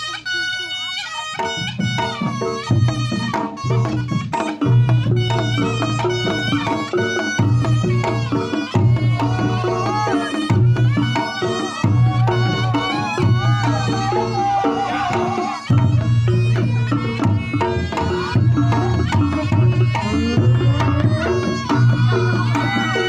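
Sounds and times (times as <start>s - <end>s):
wavering reed melody: 0.0s - 23.0s
drum strokes: 1.4s - 23.0s.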